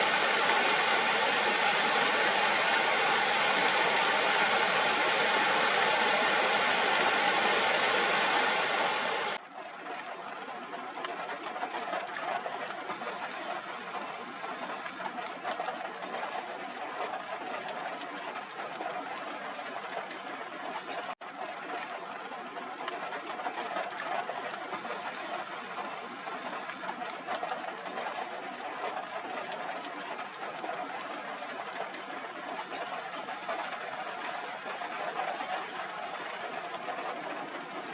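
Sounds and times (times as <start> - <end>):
waterfall roaring: 0.0 - 9.4.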